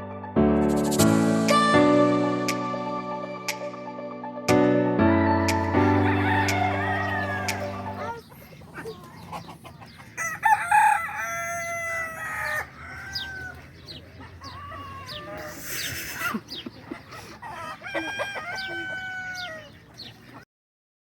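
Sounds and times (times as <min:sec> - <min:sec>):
rooster crowing: 0:05.6 - 0:08.3, 0:10.1 - 0:15.7, 0:17.2 - 0:19.8.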